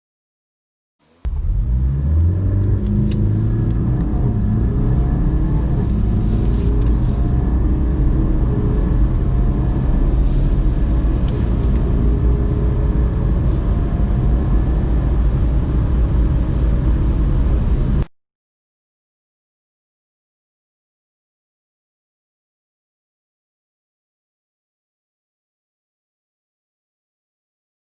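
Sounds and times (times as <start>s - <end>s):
road rumble: 1.0s - 18.1s
car engine accelerating: 1.1s - 18.1s.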